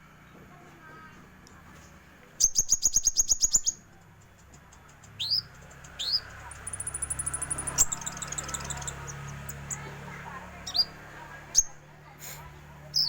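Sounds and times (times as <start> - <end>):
bird trilling and whistling: 2.4 - 3.8, 5.1 - 10.0, 10.6 - 11.8.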